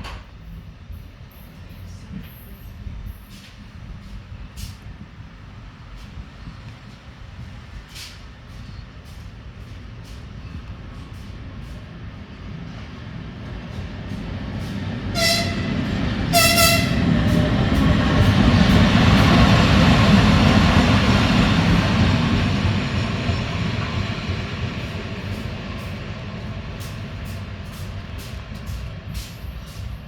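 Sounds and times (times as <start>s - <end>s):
diesel engine rumble: 13.3s - 30.0s
locomotive horn blasts: 15.1s - 17.3s.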